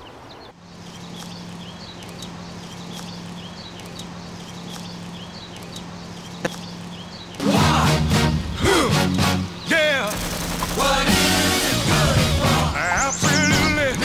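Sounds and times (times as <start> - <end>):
small bird chirping: 0.0 - 7.4, 12.8 - 13.8
steady low hum: 0.0 - 14.0.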